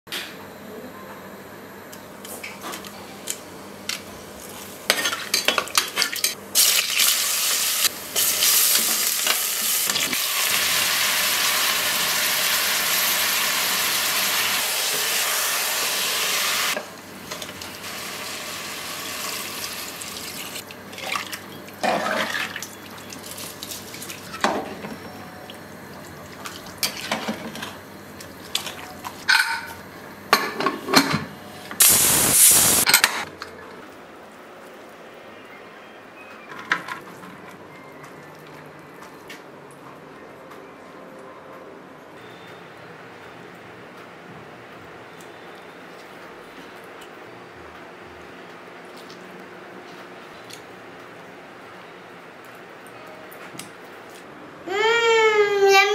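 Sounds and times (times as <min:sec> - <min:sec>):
food sizzling in hot oil: 0:06.5 - 0:20.6, 0:31.8 - 0:32.9.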